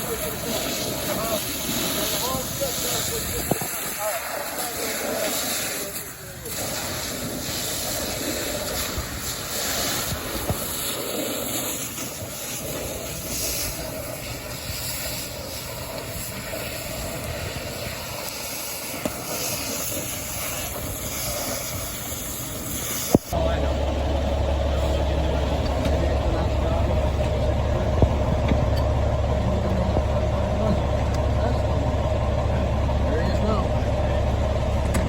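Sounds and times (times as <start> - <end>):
water hissing: 0.0 - 23.4
fire engine rumble: 0.0 - 35.0.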